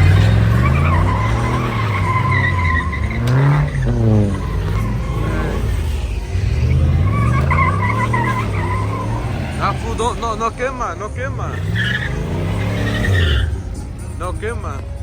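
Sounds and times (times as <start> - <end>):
car engine revving: 0.0 - 15.0
tyres squealing: 0.0 - 15.0.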